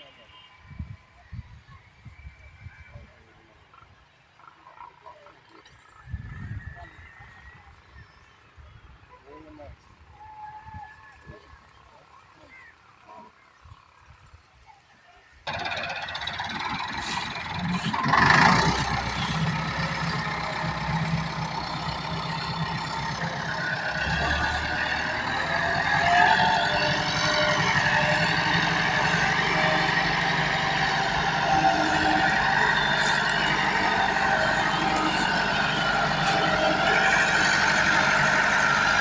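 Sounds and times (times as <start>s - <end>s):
tractor engine under load: 15.5s - 39.0s.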